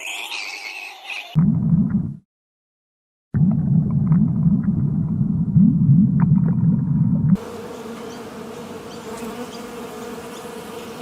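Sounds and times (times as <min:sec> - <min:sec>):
insects buzzing: 0:07.4 - 0:11.0.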